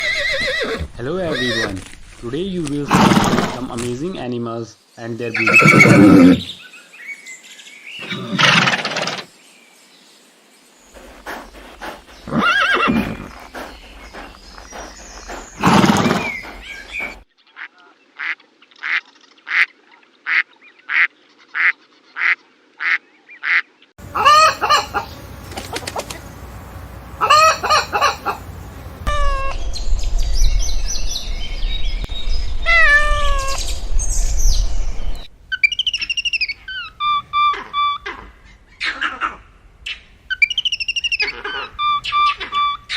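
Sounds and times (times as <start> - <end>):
farm fowl calling: 20.3 - 29.6, 35.5 - 39.4, 41.2 - 42.9
honking calls with falling pitch: 24.0 - 29.6
low rumble: 28.4 - 35.4.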